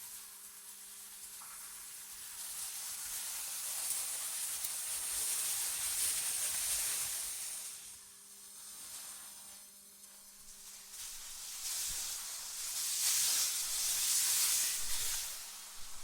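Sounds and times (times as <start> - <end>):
wind blowing with high hiss: 10.5 - 16.0.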